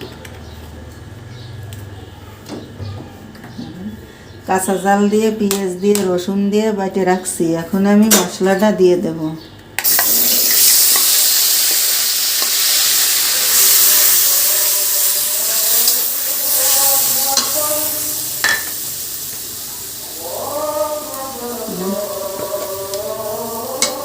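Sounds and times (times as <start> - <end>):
paste sizzling in hot oil: 9.8 - 24.0.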